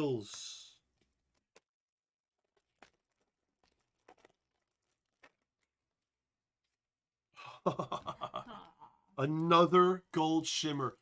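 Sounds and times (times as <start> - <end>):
person laughing: 7.4 - 9.0.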